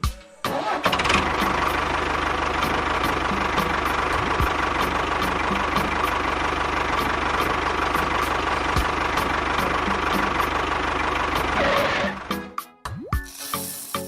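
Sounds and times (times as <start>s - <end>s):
engine idling: 0.4s - 12.6s.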